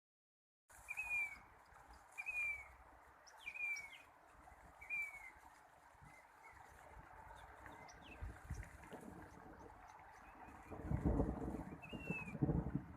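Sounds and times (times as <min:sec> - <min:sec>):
bird whistled call: 0:00.8 - 0:01.4, 0:02.1 - 0:02.7, 0:03.4 - 0:04.0, 0:04.8 - 0:05.4, 0:11.8 - 0:12.4.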